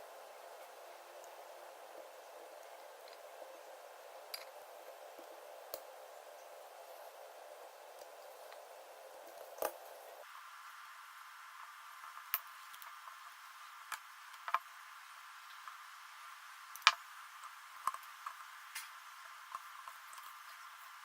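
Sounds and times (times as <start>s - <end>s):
steady hiss: 0.0s - 21.0s
small objects clicking and knocking: 16.7s - 20.7s.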